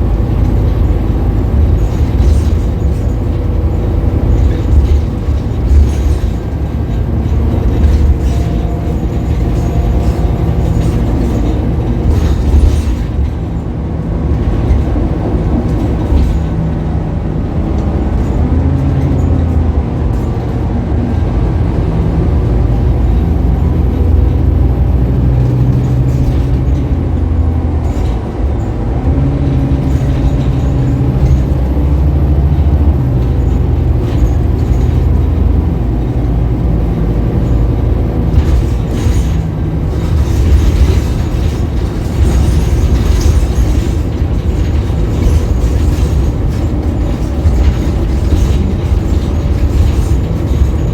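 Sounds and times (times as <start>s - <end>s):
bus diesel engine running: 0.0s - 50.9s
short rattles and knocks: 0.0s - 50.9s.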